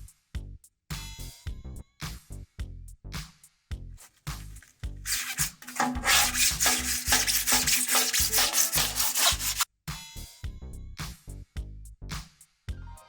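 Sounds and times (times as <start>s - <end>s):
rasping scraping: 4.0s - 9.7s
funk music: 4.3s - 9.6s.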